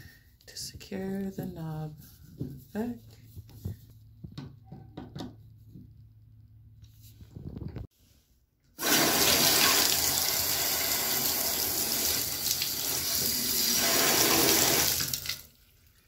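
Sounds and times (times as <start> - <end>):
water running from faucet: 8.8 - 15.6.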